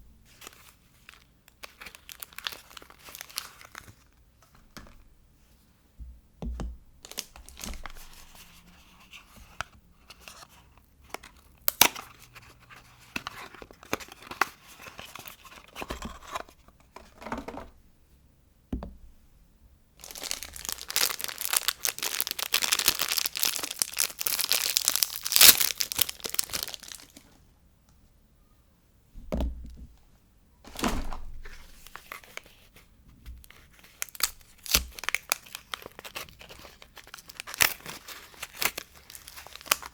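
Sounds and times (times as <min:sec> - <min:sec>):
wrappers crinkling and tearing: 0:00.3 - 0:04.1, 0:07.0 - 0:08.4, 0:20.0 - 0:27.3, 0:33.4 - 0:39.9.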